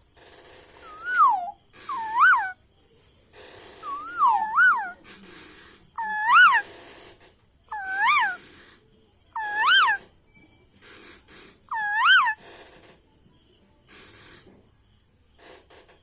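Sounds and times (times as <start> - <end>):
parrot calling maa: 0.8 - 2.6, 3.8 - 5.2, 6.0 - 6.6, 7.7 - 8.4, 9.4 - 10.0, 11.7 - 12.4.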